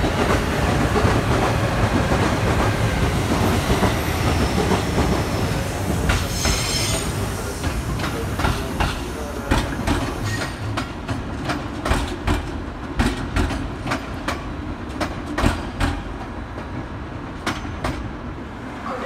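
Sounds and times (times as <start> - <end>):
train wheels rumbling on rails: 0.0 - 19.0
high wheel squeal: 6.2 - 7.2
clacks over rail joints: 7.6 - 18.2.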